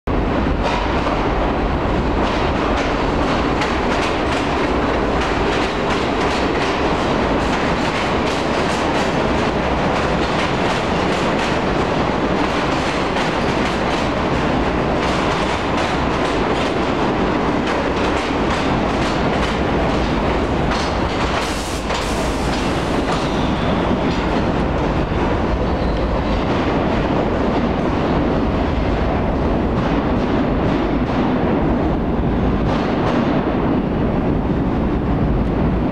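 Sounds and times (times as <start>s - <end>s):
train wheels clattering over rail joints: 2.2s - 28.3s.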